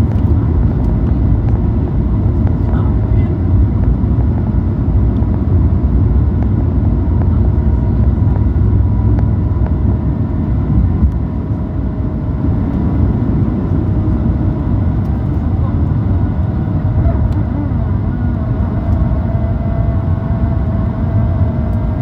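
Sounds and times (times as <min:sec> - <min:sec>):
airliner taking off: 0:00.0 - 0:22.0
faint whining tones: 0:11.0 - 0:22.0.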